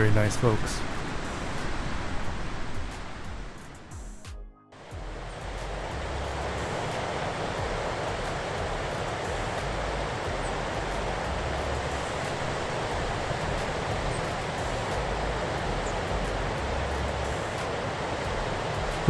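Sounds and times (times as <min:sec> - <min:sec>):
surf breaking on beach: 0:00.0 - 0:03.8, 0:05.6 - 0:16.5, 0:17.3 - 0:19.0
low rumble: 0:04.8 - 0:17.3.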